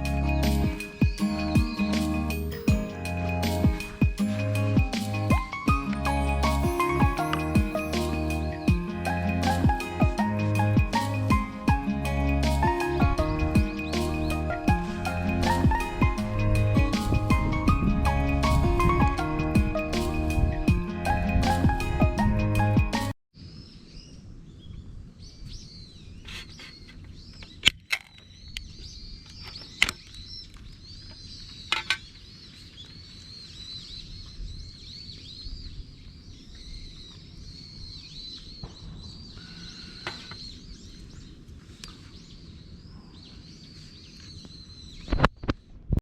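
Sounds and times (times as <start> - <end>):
steady outdoor hum: 0.0 - 23.0
background music: 0.0 - 23.2
birds chirping: 0.0 - 45.7.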